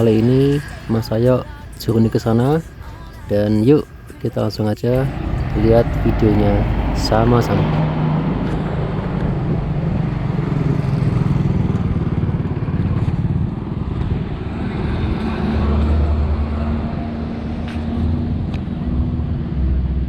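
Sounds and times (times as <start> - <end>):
motor vehicle engine running: 0.0 - 20.0.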